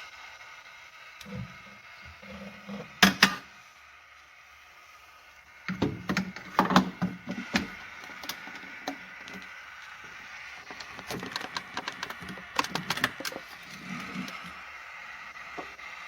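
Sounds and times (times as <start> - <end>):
objects clicking and clattering: 10.7 - 14.5.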